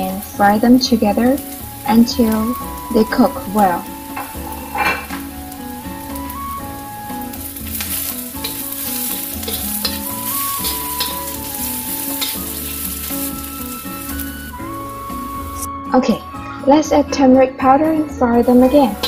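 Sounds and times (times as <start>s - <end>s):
onion sizzling in hot oil: 0.0s - 15.7s, 18.4s - 19.0s
metal spatula scraping wok: 7.6s - 14.3s.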